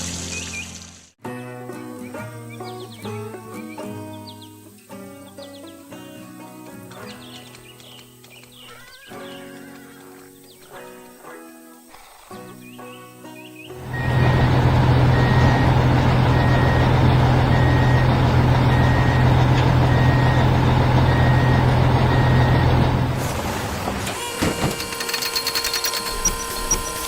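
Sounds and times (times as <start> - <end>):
reversing alarm beeping: 13.8 - 23.2, 24.2 - 27.0
large vehicle engine running: 13.8 - 27.0.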